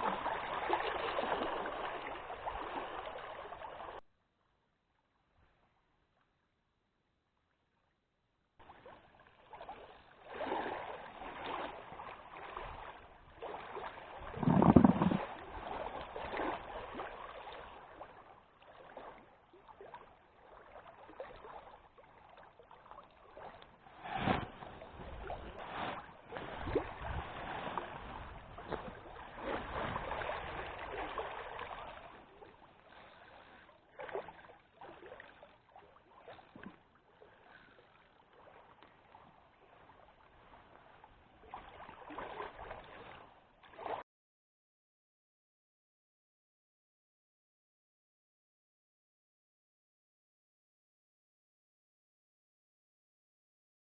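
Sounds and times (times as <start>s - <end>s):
water splashing and lapping: 0.0s - 4.1s, 8.6s - 44.0s.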